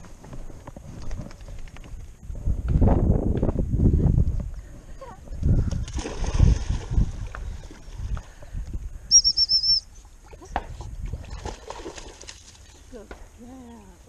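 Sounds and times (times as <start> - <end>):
water splashing and sloshing: 5.4 - 8.8, 9.9 - 13.3.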